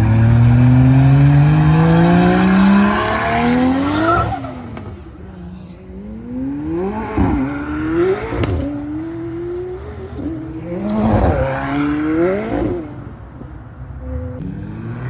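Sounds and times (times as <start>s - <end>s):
car engine accelerating through gears: 0.0s - 5.0s, 6.0s - 13.1s.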